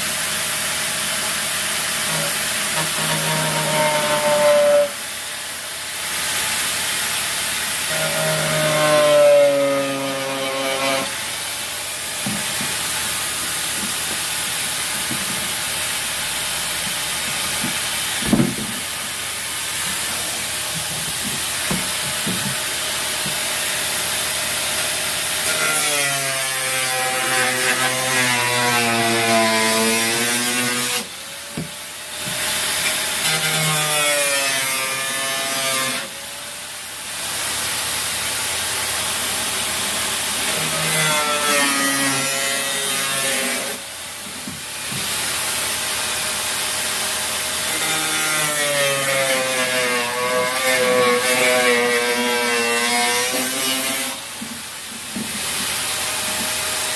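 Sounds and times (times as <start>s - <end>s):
power tool cutting: 0.4s - 36.4s, 45.1s - 54.3s.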